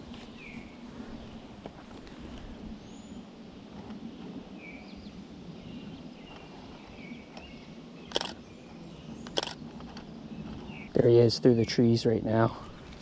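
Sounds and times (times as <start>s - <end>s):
faint bird chirps: 4.1s - 11.9s
camera shutter clicks: 8.1s - 8.4s, 9.3s - 9.6s.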